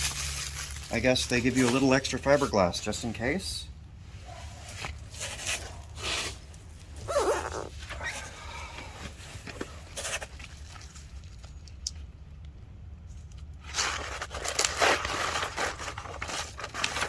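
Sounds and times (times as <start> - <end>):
packaging rustling and crinkling: 0.0 - 2.6, 4.6 - 11.7, 13.4 - 17.0.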